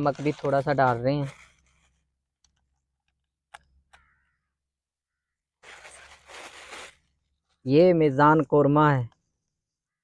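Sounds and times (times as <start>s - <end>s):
dry rustling: 5.6s - 7.2s.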